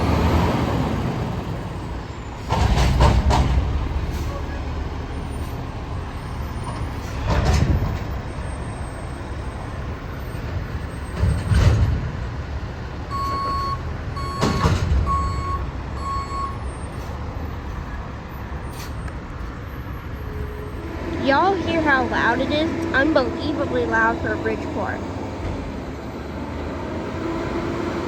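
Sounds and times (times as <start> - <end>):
diesel truck engine running: 0.0 - 28.0
reversing alarm beeps: 13.1 - 16.9.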